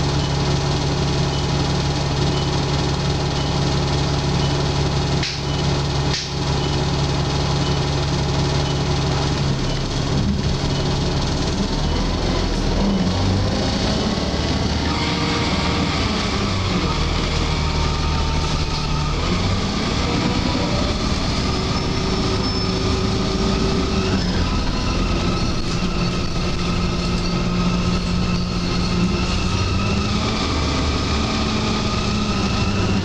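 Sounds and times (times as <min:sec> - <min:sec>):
bus drivetrain running: 0:00.0 - 0:33.0
high-pitched screeching tones: 0:11.8 - 0:33.0.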